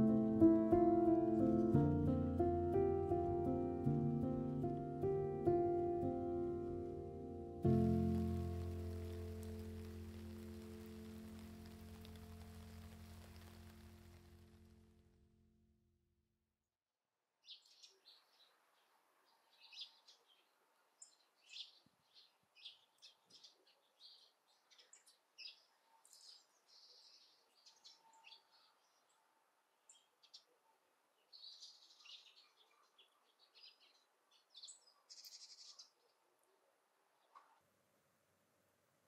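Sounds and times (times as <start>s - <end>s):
small birds chirping: 7.7s - 14.6s, 17.4s - 36.3s.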